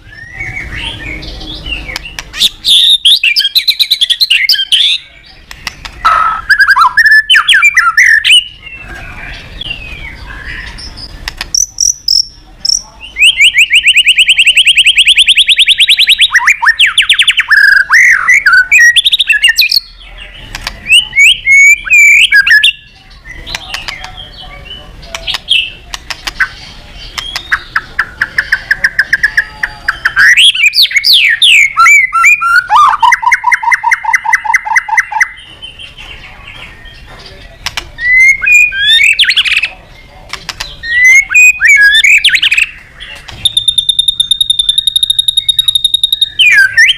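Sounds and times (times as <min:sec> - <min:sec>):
songbird singing trills and whistles: 0:00.0 - 0:46.9.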